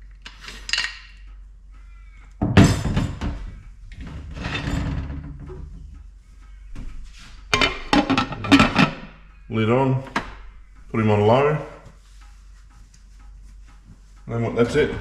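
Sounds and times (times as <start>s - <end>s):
knocking and scraping: 6.8s - 9.3s.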